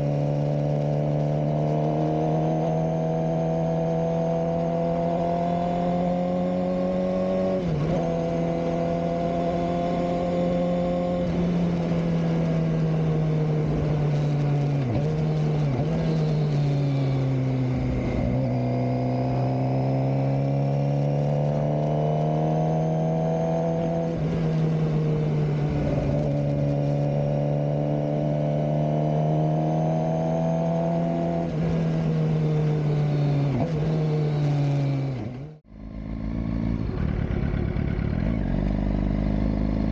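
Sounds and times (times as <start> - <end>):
motorcycle engine running: 30.8 - 39.9.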